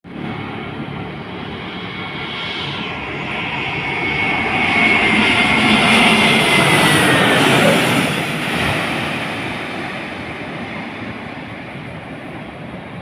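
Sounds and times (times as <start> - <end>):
jet engines on approach: 0.0 - 13.0
high whine: 0.1 - 9.7.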